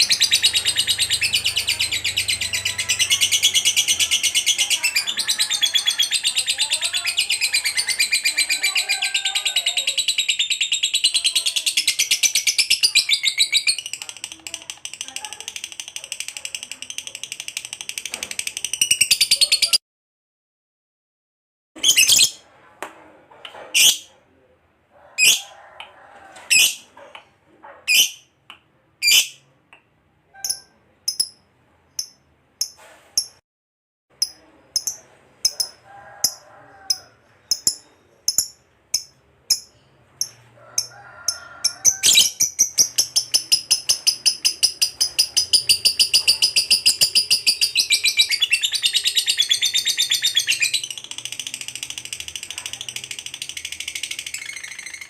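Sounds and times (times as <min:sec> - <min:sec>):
lovebird chirping and trilling: 0:00.0 - 0:19.8, 0:21.8 - 0:22.4, 0:25.2 - 0:25.5, 0:26.5 - 0:27.0, 0:27.9 - 0:28.3, 0:29.0 - 0:29.5, 0:30.3 - 0:31.4, 0:34.2 - 0:55.0.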